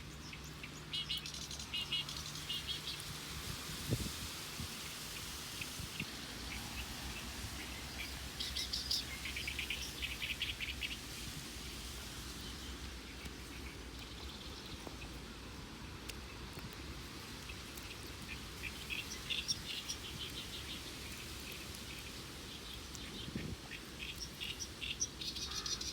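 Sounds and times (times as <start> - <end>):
outdoor background noise: 0.0 - 25.9
bird chirping: 6.5 - 11.0, 17.5 - 25.9.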